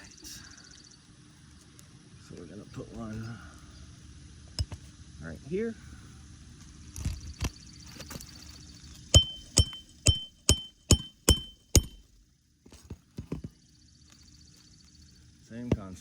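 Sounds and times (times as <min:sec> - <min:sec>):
hammer striking metal: 0:09.2 - 0:12.1.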